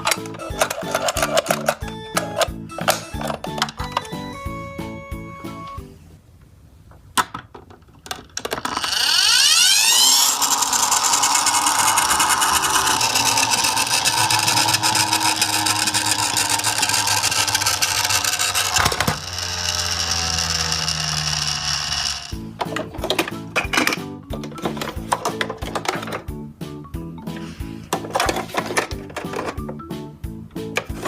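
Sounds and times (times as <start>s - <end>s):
toy car whirring and rattling: 0.0s - 3.8s, 8.4s - 23.3s
toy click: 8.7s - 22.4s.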